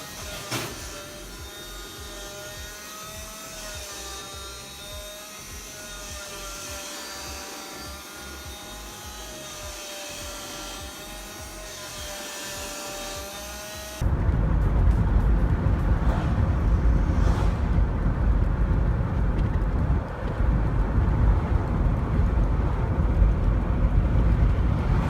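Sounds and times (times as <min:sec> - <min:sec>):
small motor whining: 0:00.0 - 0:14.0.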